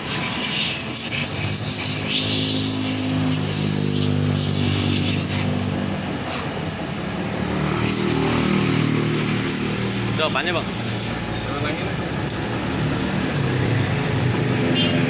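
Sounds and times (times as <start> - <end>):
compressed air hissing: 0.0 - 5.7, 7.6 - 11.4.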